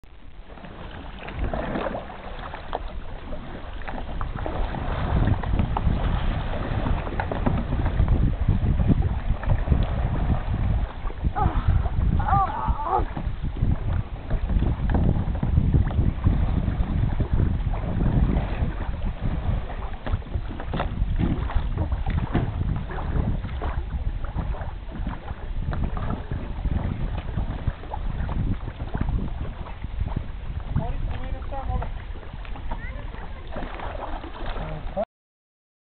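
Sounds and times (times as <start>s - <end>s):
light water splashes: 0.1s - 35.0s
wind buffeting microphone: 0.6s - 35.0s.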